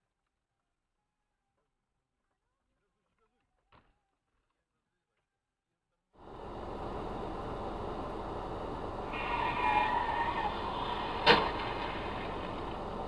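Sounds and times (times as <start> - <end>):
car road noise: 6.2 - 13.0.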